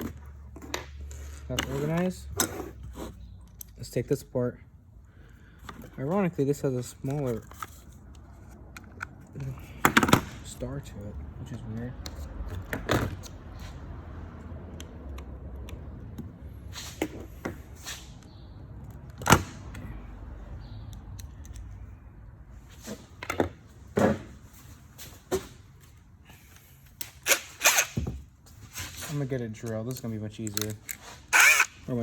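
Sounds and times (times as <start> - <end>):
tools and plastic parts clicking: 3.4 - 3.8, 7.0 - 10.4, 20.9 - 21.8, 29.6 - 31.8.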